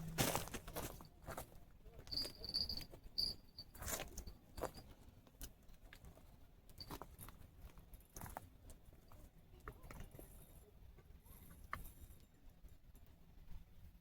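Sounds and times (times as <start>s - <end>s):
footsteps on dry ground: 0.0s - 1.5s.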